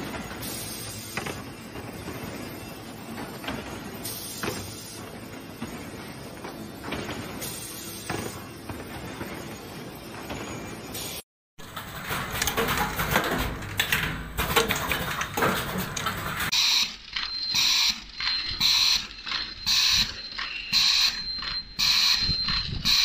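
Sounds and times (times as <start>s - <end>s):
high electronic beep: 16.6s - 23.0s.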